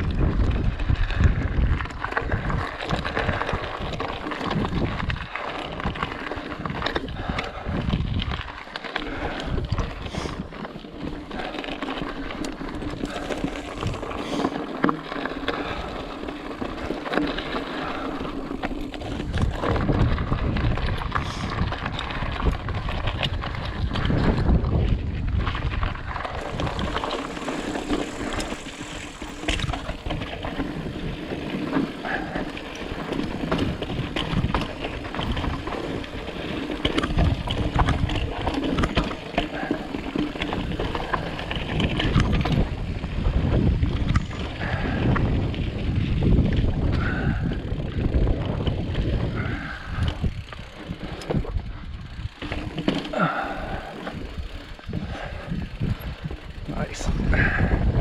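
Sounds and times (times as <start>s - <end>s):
bike clattering and rattling: 0.0s - 57.7s
bike tyres rolling over rock: 0.0s - 58.0s.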